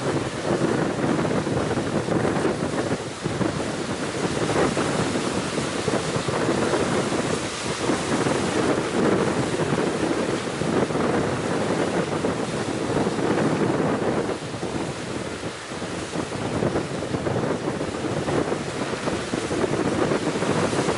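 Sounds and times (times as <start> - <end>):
gale wind buffeting microphone: 0.0 - 20.9
ocean surf: 0.0 - 20.9.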